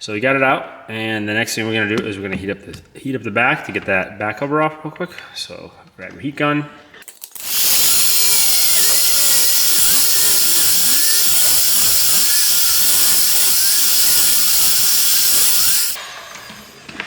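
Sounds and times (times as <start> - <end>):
heat gun blowing: 7.4 - 16.0.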